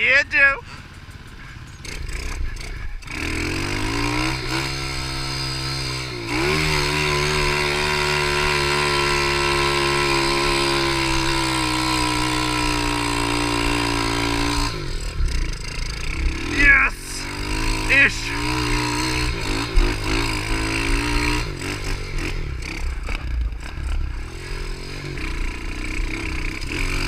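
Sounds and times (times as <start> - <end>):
small motorbike engine accelerating: 0.8 - 27.0.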